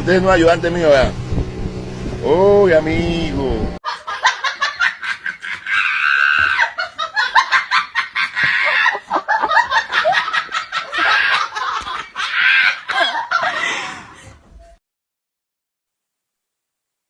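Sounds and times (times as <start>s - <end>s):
high-pitched cackling laughter: 3.8s - 13.6s.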